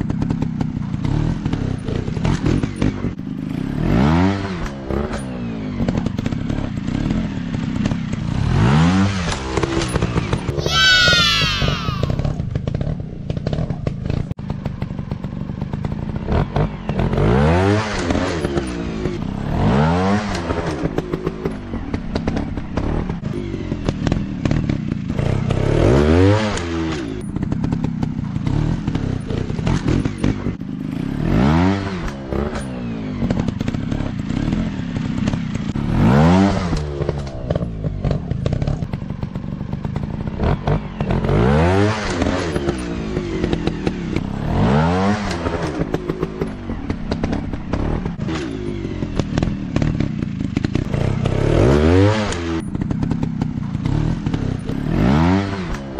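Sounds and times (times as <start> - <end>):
dirt bike engines revving: 6.8 - 14.2.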